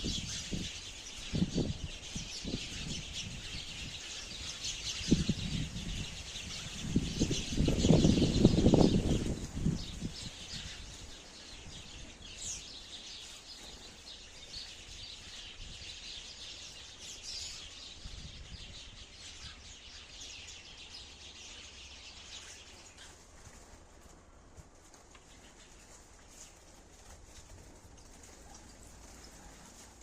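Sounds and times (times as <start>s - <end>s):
sparrows chirping: 0.0s - 23.3s.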